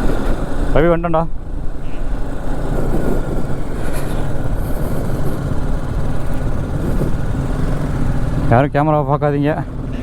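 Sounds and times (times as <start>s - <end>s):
motorcycle engine running: 0.0s - 10.0s
wind rumble on microphone: 1.4s - 8.5s.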